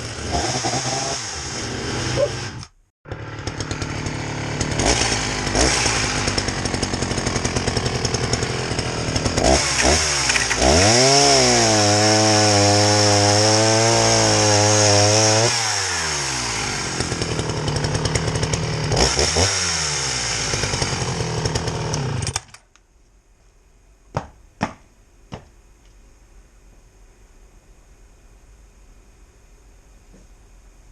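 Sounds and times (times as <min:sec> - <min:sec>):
chainsaw idling and revving: 0:00.0 - 0:22.6.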